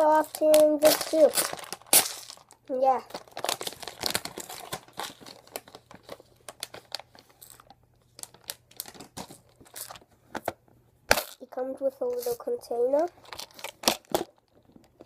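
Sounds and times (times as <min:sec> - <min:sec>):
packaging tearing and crinkling: 0:00.0 - 0:10.0, 0:13.2 - 0:14.8.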